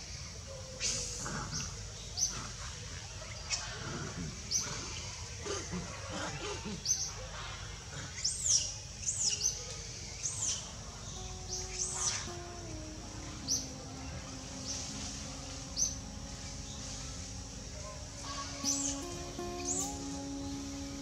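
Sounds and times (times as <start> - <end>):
birds chirping: 9.1 - 21.0
arched high bird notes: 9.3 - 21.0.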